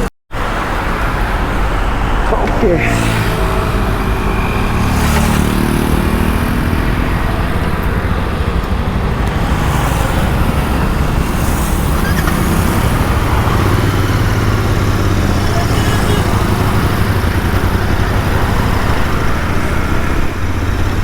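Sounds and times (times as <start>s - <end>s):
steady rushing noise: 0.6s - 11.9s
motorcycle engine accelerating: 1.0s - 21.0s.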